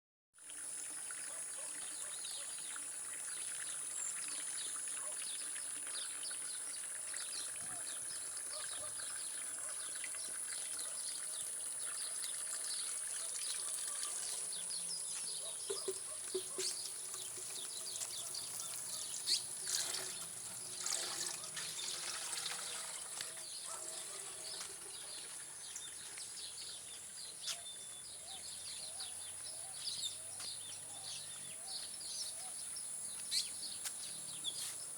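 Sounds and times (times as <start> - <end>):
bird chirps: 13.9 - 19.5, 27.4 - 33.7.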